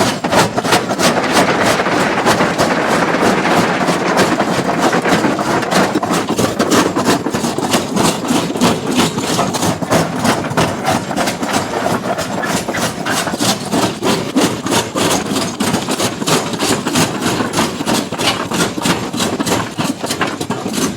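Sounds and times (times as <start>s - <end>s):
machine engine running: 0.1s - 7.0s.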